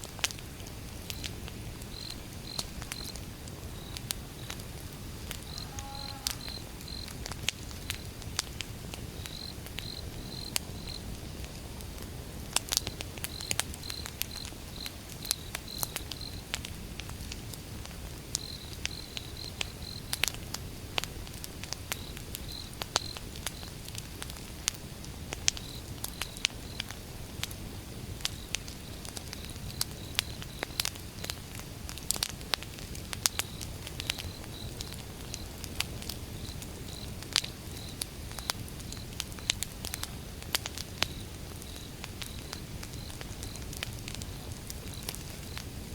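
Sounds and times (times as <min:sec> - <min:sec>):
campfire crackling and popping: 0:00.0 - 0:45.9
insect chirping: 0:01.9 - 0:03.2, 0:03.8 - 0:04.6, 0:05.4 - 0:07.2, 0:09.2 - 0:11.1, 0:33.4 - 0:35.6, 0:36.4 - 0:39.6, 0:44.8 - 0:45.7.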